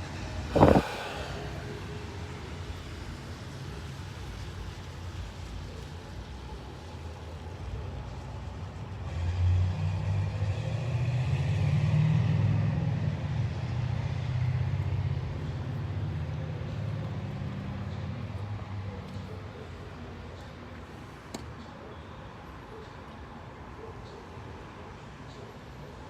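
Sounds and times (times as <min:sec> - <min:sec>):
traffic hiss: 0:00.0 - 0:26.0
vehicle passing: 0:00.2 - 0:03.4, 0:09.0 - 0:20.7.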